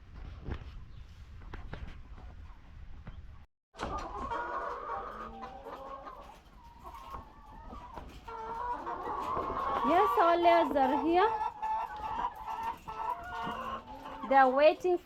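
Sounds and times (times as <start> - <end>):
hens clucking: 3.8 - 15.0.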